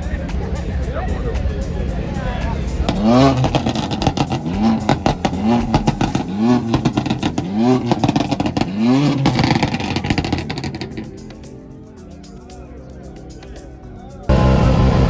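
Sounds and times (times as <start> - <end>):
car engine revving: 0.0 - 12.2, 14.3 - 15.0
exhaust pops crackling: 0.0 - 15.0.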